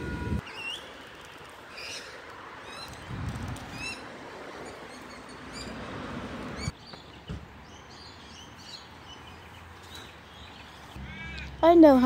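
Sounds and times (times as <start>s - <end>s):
small birds chirping: 6.6s - 12.0s.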